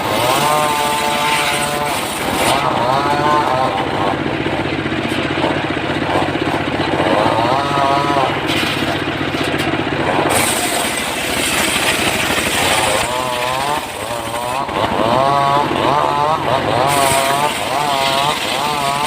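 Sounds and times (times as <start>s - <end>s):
engine-driven saw running: 0.0s - 19.0s
saw cutting hiss: 10.3s - 14.6s, 16.7s - 19.0s.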